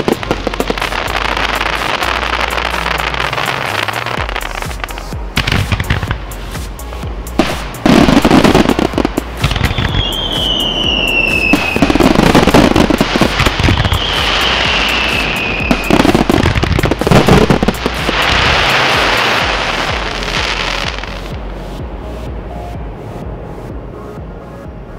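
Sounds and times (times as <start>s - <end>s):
fireworks bursting and crackling: 0.0s - 21.5s
fireworks falling whistles: 7.4s - 21.1s.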